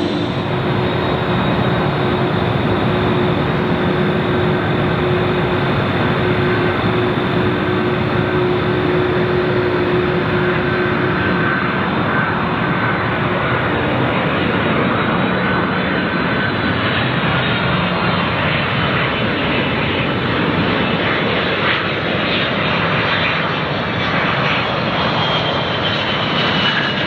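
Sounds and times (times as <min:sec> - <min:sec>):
faint hum: 0:00.0 - 0:21.6
thin whine: 0:00.0 - 0:22.2
jet engines rushing: 0:00.0 - 0:24.2.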